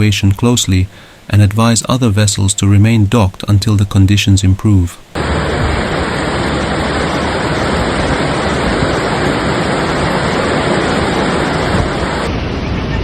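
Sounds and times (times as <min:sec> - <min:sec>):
turbulent water rushing: 0:05.1 - 0:12.3.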